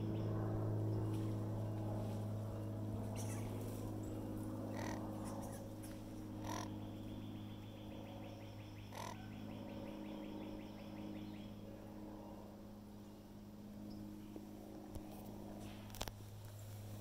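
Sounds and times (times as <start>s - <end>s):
steady low hum: 0.0s - 17.0s
harsh crow-like bird calls: 4.7s - 11.3s.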